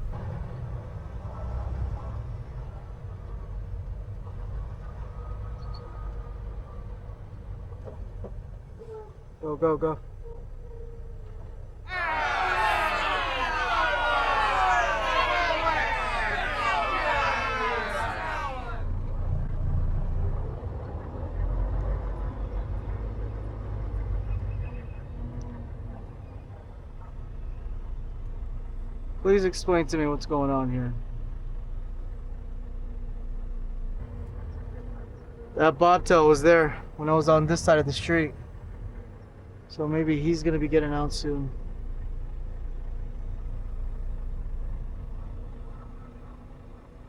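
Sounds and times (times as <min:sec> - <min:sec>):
truck engine rumbling: 0:11.9 - 0:20.6.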